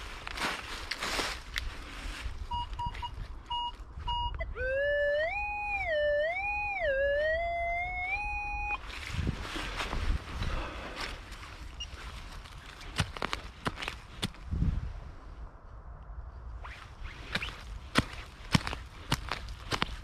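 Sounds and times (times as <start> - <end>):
metal detector short beeps: 2.5 - 4.5
metal detector electronic tone: 2.5 - 8.8.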